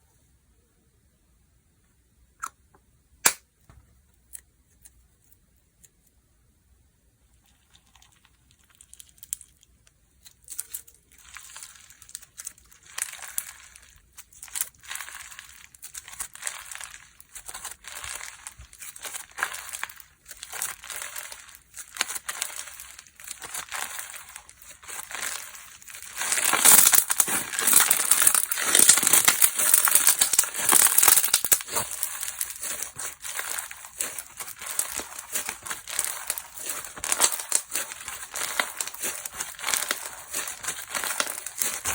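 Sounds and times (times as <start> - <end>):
hands squeezing slime: 10.3 - 41.9.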